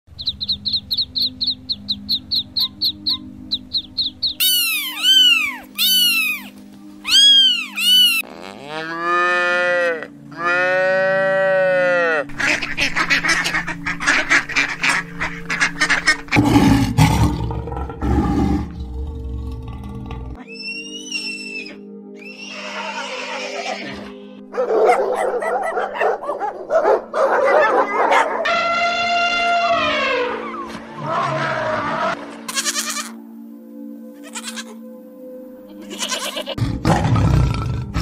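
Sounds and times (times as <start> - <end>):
background music: 0.1 - 38.0
chicks peeping: 0.2 - 6.5
loud bird calls: 0.2 - 6.5, 7.1 - 8.2
cow mooing: 8.3 - 12.3
lion growling: 16.4 - 20.4, 36.6 - 38.0.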